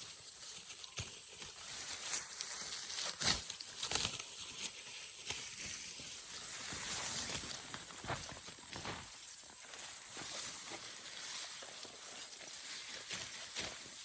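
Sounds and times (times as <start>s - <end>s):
grass rustling and crunching: 0.0s - 14.0s.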